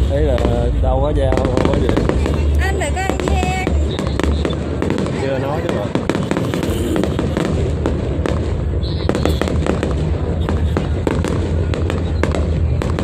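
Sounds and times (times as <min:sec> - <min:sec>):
low rumble: 0:00.0 - 0:05.1
fireworks bangs and crackles: 0:00.0 - 0:13.0
people's voices: 0:00.0 - 0:13.0.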